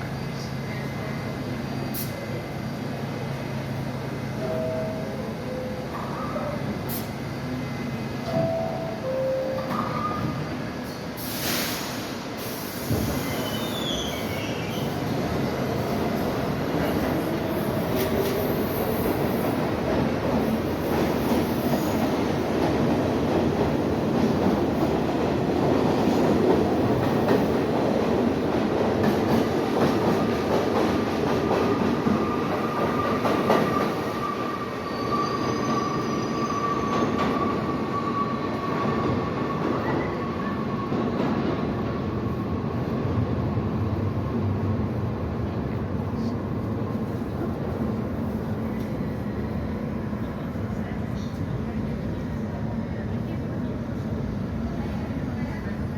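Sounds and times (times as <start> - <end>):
subway train rumbling on rails: 0.0 - 55.9
high wheel squeal: 34.2 - 38.7.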